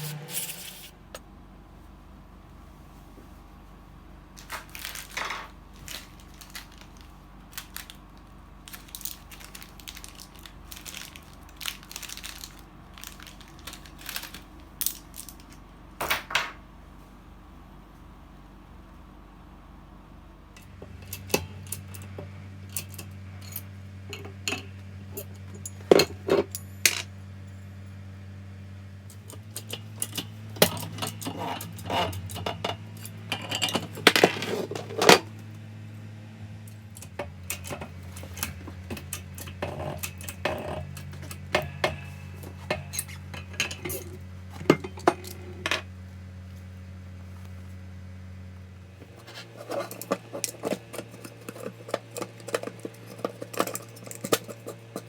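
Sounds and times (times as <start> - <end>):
steady low hum: 0.0 - 55.0
metal tools clinking: 4.4 - 8.0, 8.7 - 15.6, 22.7 - 27.1, 29.1 - 35.2, 37.0 - 45.8, 49.2 - 55.0.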